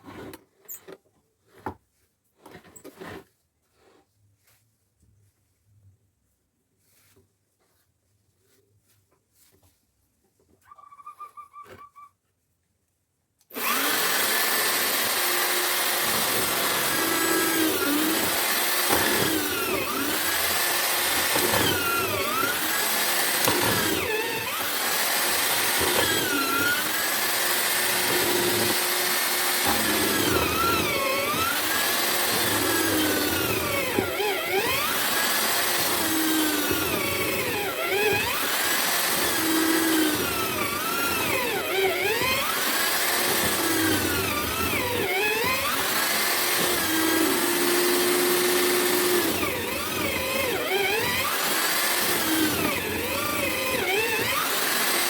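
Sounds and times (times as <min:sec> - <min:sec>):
drill motor cutting wood: 0:13.5 - 0:55.0.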